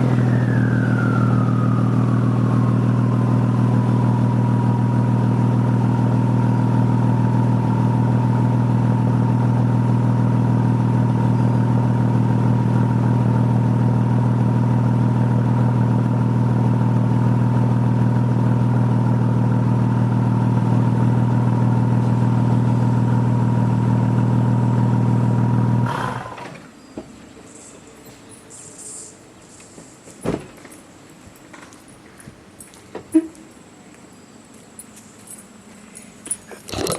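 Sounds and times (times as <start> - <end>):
car engine running: 0.0 - 26.3.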